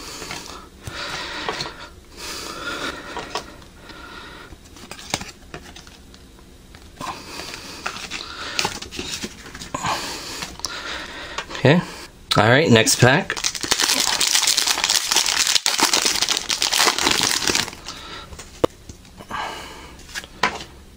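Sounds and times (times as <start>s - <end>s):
trading cards rustling: 7.4s - 9.8s, 13.3s - 18.5s.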